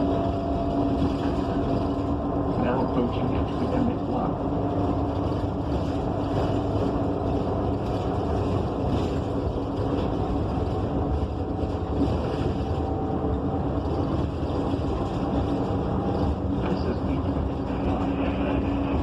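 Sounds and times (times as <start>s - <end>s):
bus engine hum: 0.0s - 19.0s
low road rumble: 0.0s - 19.0s.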